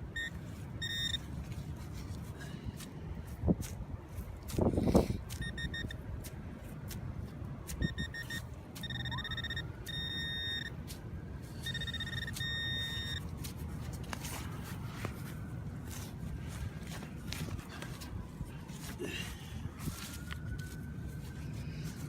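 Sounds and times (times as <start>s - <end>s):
metal detector beeping: 0.1s - 1.3s, 5.3s - 6.0s, 7.8s - 10.8s, 11.6s - 13.3s
wind rumble on microphone: 2.8s - 8.1s.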